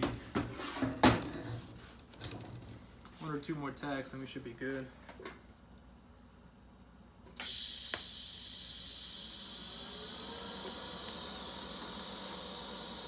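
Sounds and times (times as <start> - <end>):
welding arc hissing and whining: 7.4 - 13.0.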